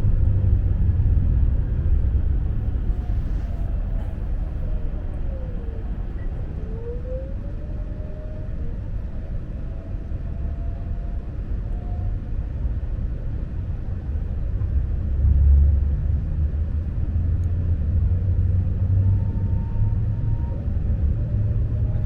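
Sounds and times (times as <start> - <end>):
electric train rumbling: 0.0 - 7.2
faint whine: 0.0 - 15.5
faint steady tone: 2.4 - 7.6.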